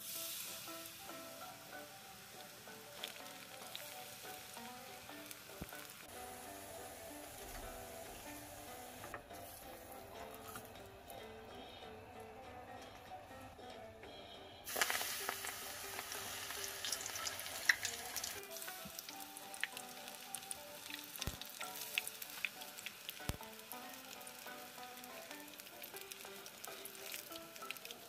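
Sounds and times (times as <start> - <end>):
battered food deep-frying in oil: 0.0 - 12.0, 14.6 - 28.0
oil popping: 0.5 - 13.8, 14.6 - 28.0.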